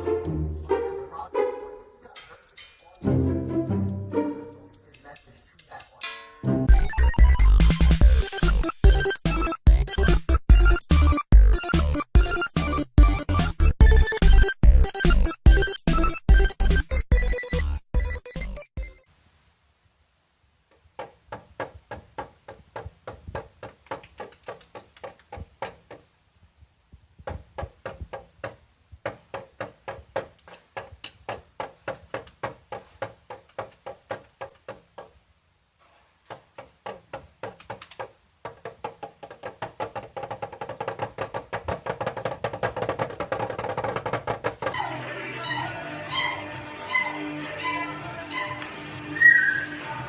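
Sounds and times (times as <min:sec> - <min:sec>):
wood-block-like tapping: 0:21.0 - 0:26.1, 0:27.2 - 0:35.2, 0:36.2 - 0:44.8.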